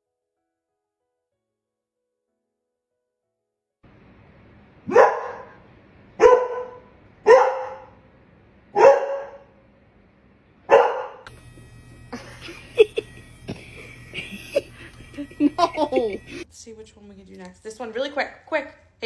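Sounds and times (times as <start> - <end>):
dog barking: 4.9 - 5.6, 6.2 - 8.0, 8.7 - 9.6, 10.7 - 11.3.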